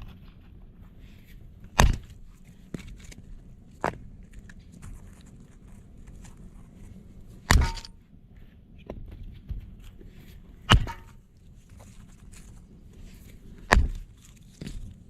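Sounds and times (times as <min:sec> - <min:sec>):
rustling and handling noise: 0:00.0 - 0:15.0
heavy strikes with ring: 0:07.5 - 0:07.9, 0:10.7 - 0:11.2.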